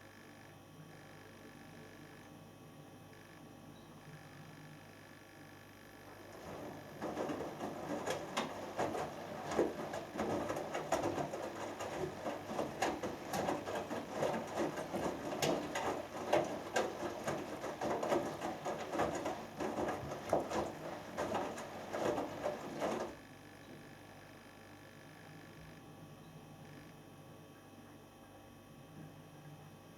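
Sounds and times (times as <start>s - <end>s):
washing machine drum turning: 6.1s - 23.2s
wet laundry sloshing and tumbling: 6.1s - 23.2s.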